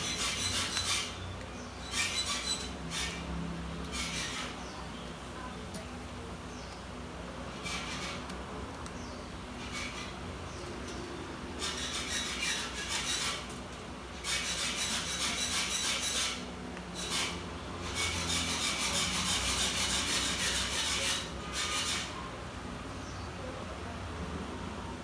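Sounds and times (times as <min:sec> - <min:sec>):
scraping on a hard surface: 0:00.0 - 0:04.8, 0:07.5 - 0:08.5, 0:09.6 - 0:22.2.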